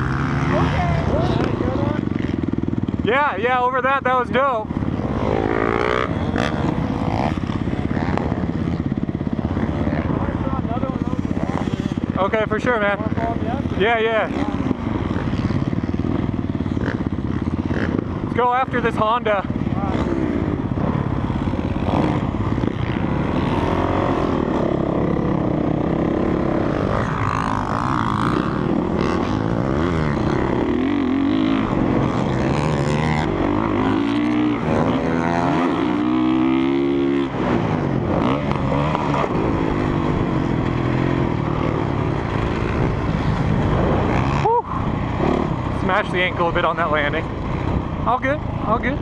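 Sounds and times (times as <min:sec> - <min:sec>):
motocross bike engine revving: 0:00.0 - 0:49.0
wind noise: 0:34.2 - 0:49.0.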